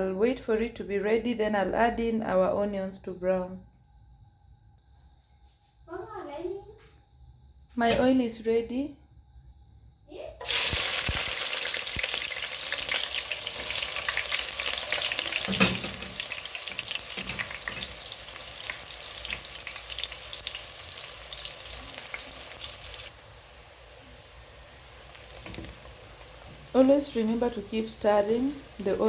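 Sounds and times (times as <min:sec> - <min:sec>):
onions sizzling in hot oil: 0:10.4 - 0:29.0.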